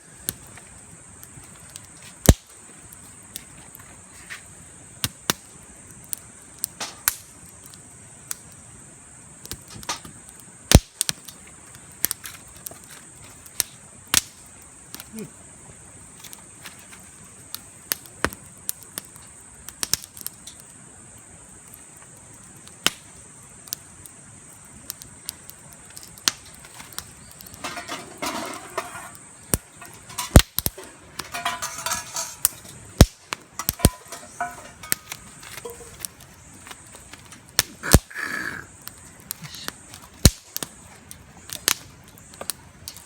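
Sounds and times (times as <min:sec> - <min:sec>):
campfire crackling and popping: 0:00.0 - 0:43.0
rustling and clinking handling noise: 0:27.5 - 0:32.9, 0:33.5 - 0:37.6.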